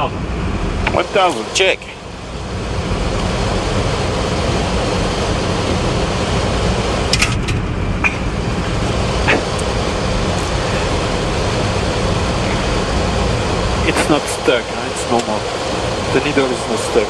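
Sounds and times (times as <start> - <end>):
short clicks: 7.1 - 7.7.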